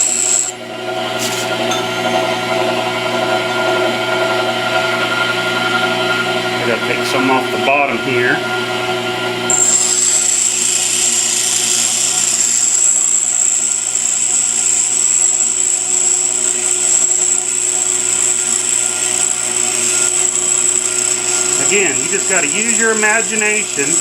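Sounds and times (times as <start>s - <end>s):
grinder wheel grinding metal: 0.0s - 3.2s, 9.5s - 24.0s
grinder motor hum: 0.0s - 6.3s, 9.5s - 24.0s.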